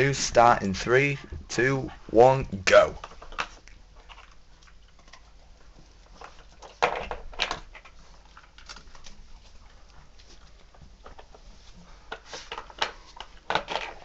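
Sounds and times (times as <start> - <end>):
dog pattering and scuffling: 3.1 - 14.0.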